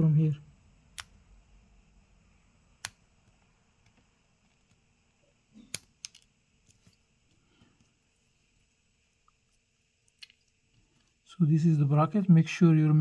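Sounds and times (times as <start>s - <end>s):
tool clicking on phone frame: 1.0s - 1.2s, 5.6s - 7.0s.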